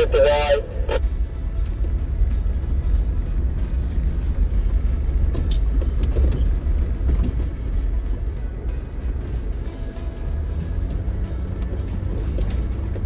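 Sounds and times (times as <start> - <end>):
vehicle engine and tyres rumbling: 0.0 - 13.0
knocks and rattles: 1.2 - 9.4.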